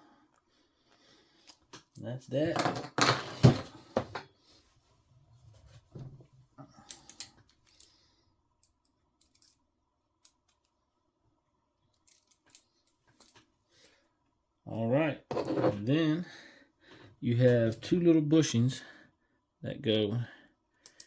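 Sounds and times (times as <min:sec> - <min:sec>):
clicks of small tools handled: 0:08.6 - 0:09.6, 0:11.9 - 0:13.5.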